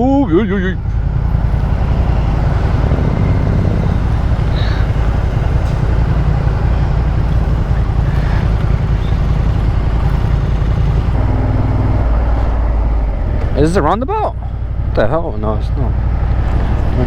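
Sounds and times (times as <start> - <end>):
motorcycle engine running: 0.8 - 17.0.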